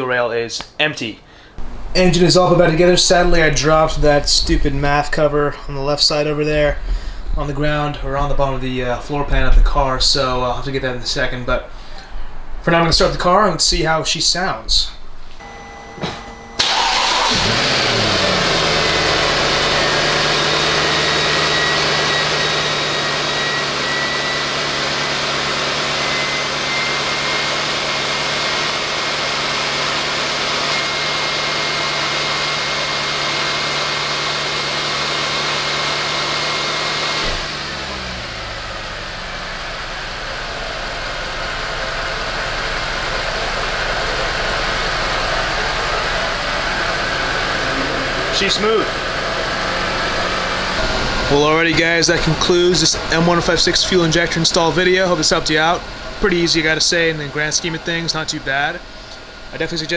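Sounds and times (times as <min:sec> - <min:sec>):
car engine starting and idling: 0:15.4 - 0:59.9.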